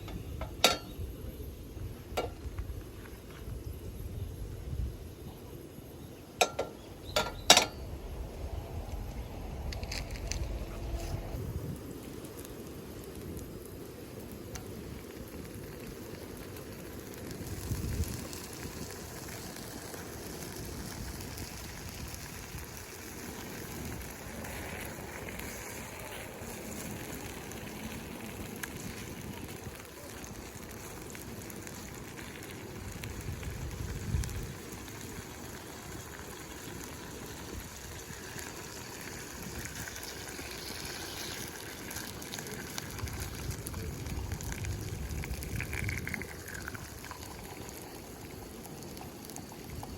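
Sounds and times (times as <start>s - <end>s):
campfire crackling: 0.0s - 49.9s
low rumbles: 6.9s - 11.8s.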